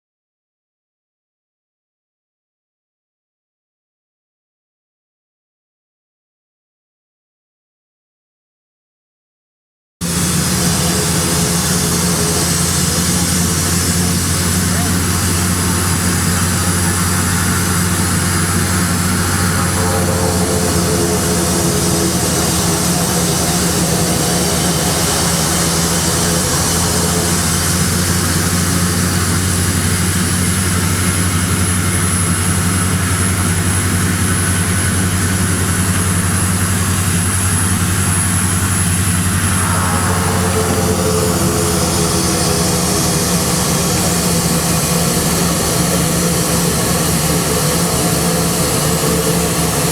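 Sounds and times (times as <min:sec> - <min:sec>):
turboprop engines droning: 0:10.0 - 0:49.9.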